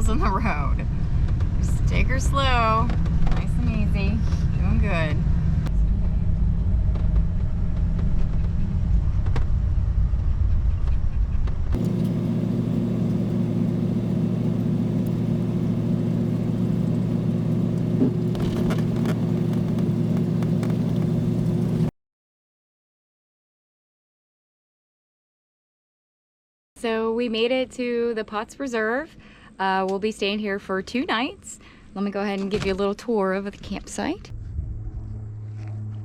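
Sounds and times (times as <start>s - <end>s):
engine and road rumble: 0.0s - 21.9s, 34.3s - 36.0s.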